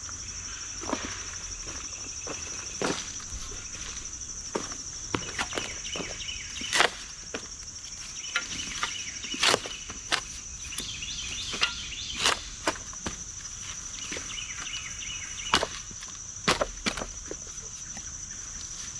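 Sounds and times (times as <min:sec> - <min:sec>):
pulsing insect chorus: 0:01.5 - 0:06.7
sharp crunching impacts: 0:03.0 - 0:04.7.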